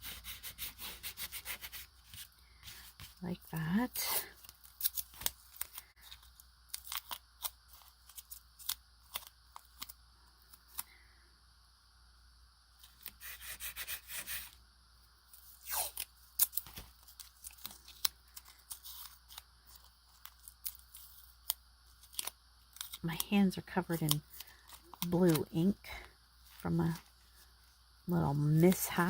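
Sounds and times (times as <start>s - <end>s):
paper and tape crinkling: 0.4s - 10.9s, 15.4s - 23.3s, 23.9s - 29.0s
paper rustle: 15.4s - 23.0s
tape tearing: 15.5s - 23.0s.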